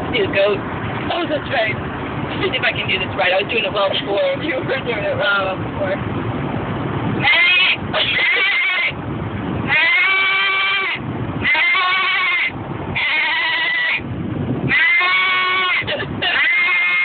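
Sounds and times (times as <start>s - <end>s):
car road rumble: 0.0s - 17.0s
person imitating goat bleats: 7.2s - 9.0s, 9.7s - 14.0s, 14.7s - 17.0s.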